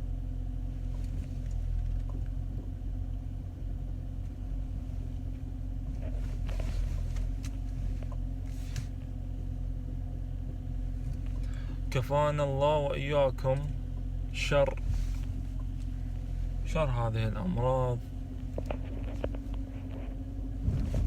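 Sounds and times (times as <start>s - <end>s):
faint hum: 0.0s - 21.0s
low rumble: 13.6s - 21.0s.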